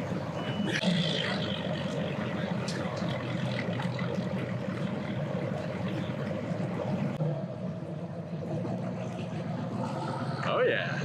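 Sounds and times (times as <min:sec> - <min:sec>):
outboard motors running: 0:00.0 - 0:11.0.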